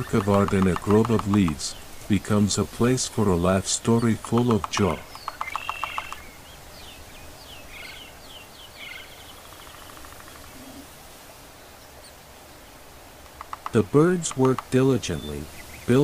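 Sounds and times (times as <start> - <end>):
outdoor ambience hiss: 0.0 - 16.0
small bird trilling and chirping: 4.5 - 10.8.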